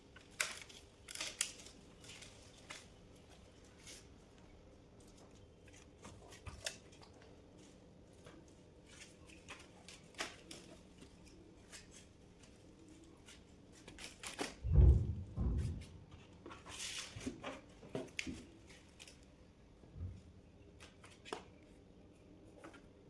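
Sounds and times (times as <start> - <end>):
dull heavy thumps: 14.7 - 16.0.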